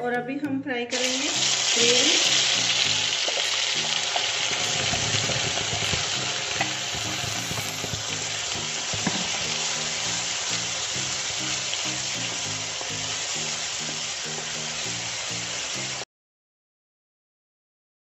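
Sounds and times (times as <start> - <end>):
paste sizzling in hot oil: 0.9 - 16.0
spatula stirring: 3.1 - 14.5.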